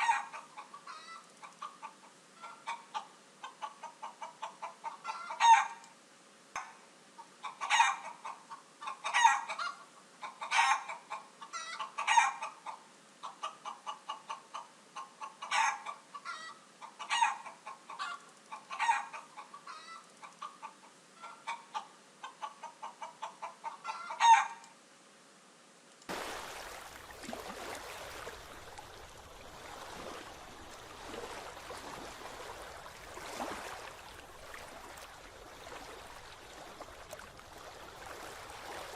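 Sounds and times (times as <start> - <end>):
chickens clucking: 7.4 - 24.4, 26.5 - 38.9.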